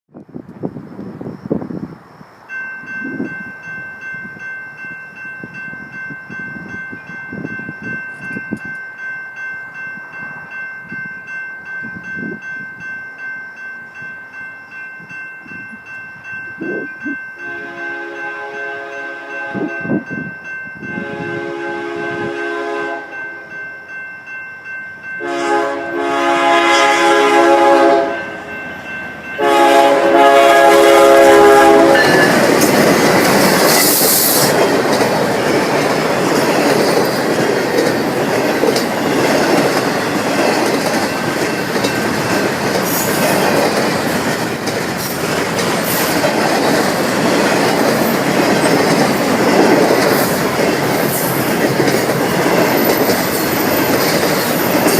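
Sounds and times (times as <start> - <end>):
train rumble passing: 13.9 - 54.9
train horn blasts: 17.4 - 20.0, 20.9 - 23.2, 25.2 - 28.5, 29.4 - 32.5
wheels clattering on rails: 31.0 - 54.9.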